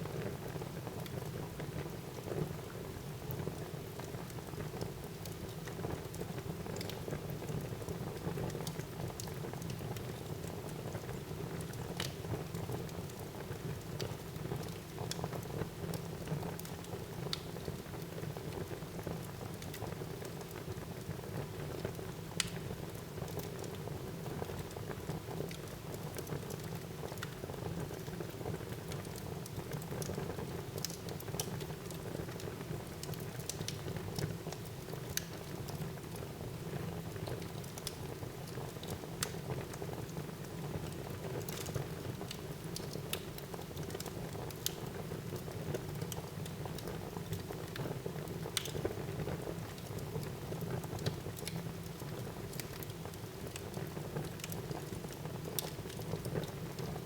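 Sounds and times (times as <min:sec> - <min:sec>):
logs crackling and popping: 0:22.4 - 0:22.6, 0:33.0 - 0:35.8, 0:40.8 - 0:49.0, 0:49.8 - 0:56.9.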